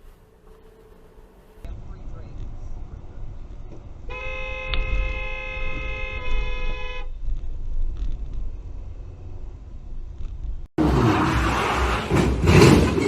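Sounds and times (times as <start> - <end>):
road noise rumble: 0.0 - 13.0
car horn sounding: 4.1 - 7.2.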